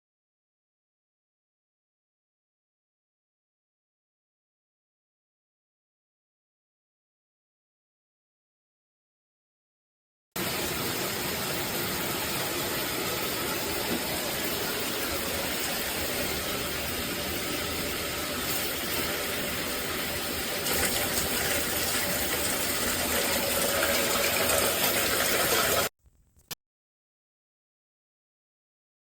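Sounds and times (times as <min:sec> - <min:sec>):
shower spraying water: 0:10.4 - 0:25.9.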